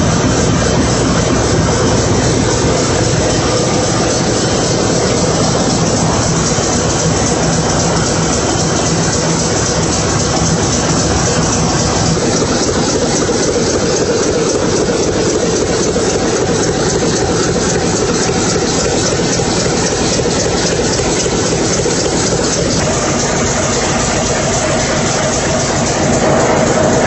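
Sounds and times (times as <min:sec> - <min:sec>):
large engine running: 0:00.0 - 0:27.0.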